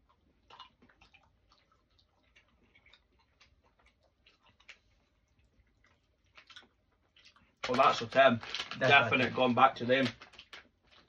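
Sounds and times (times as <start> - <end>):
chewing mouth clicks: 0.0 - 7.6.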